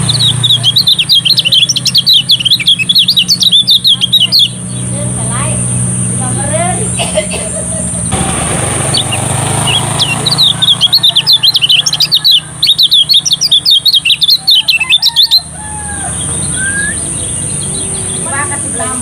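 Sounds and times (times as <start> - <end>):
bird twittering song: 0.0 - 7.0, 8.8 - 19.0
steady low hum: 0.0 - 14.4.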